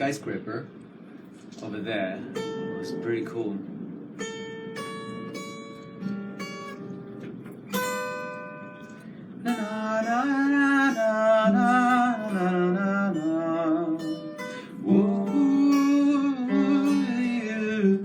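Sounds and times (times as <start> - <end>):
acoustic guitar picked slowly: 0.7 - 18.0
person singing wordless lullaby: 9.5 - 18.0.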